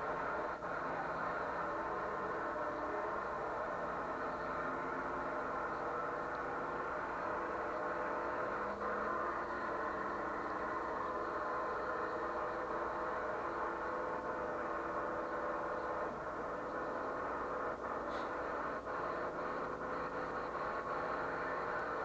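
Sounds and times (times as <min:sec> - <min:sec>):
drag car engines idling: 0:00.0 - 0:22.0.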